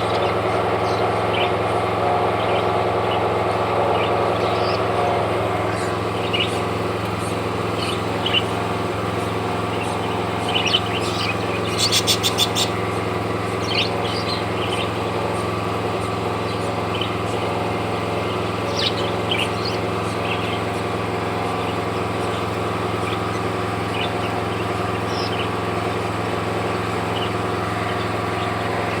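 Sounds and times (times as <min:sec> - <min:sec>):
steady machine hum: 0:00.0 - 0:29.0
lovebirds chirping: 0:03.9 - 0:29.0.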